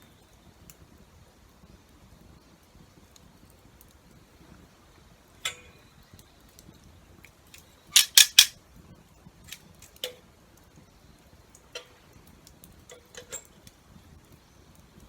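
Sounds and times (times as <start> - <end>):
sharp knocks and clicks: 8.0 - 8.5.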